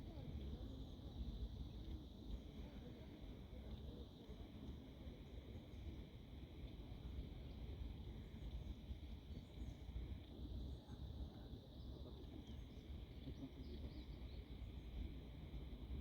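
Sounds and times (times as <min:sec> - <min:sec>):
faint bird chirps: 0:11.7 - 0:15.6.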